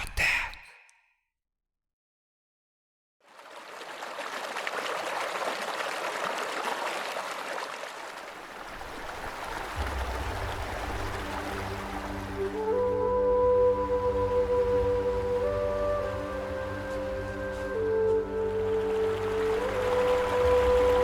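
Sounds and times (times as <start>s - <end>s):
stream rushing over rocks: 3.3s - 12.6s, 15.1s - 21.0s
low music drone: 9.8s - 21.0s.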